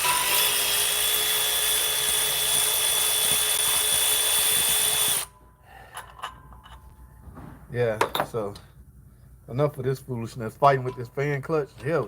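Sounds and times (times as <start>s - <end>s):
power tool whining: 0.0s - 5.4s.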